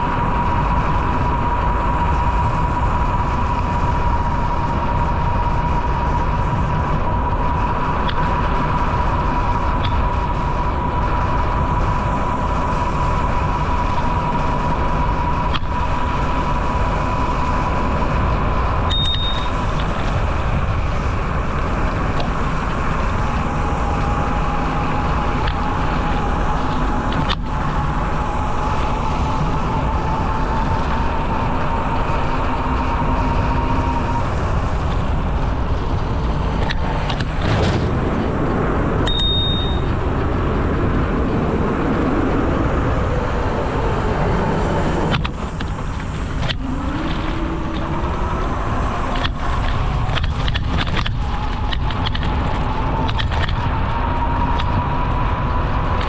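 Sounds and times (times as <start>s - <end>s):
bicycle tyres rolling on pavement: 0.0s - 56.0s
wind: 0.0s - 56.0s
bicycle bell ringing: 18.9s - 19.6s, 39.1s - 39.9s.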